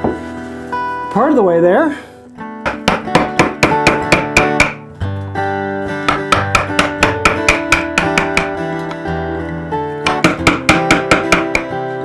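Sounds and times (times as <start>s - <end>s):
acoustic guitar plucking: 2.4s - 12.0s.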